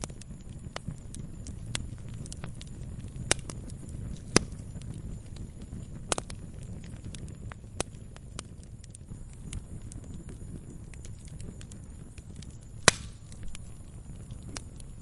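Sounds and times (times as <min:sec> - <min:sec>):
low steady rumble: 0:00.0 - 0:15.0
wood fire crackling: 0:00.0 - 0:15.0.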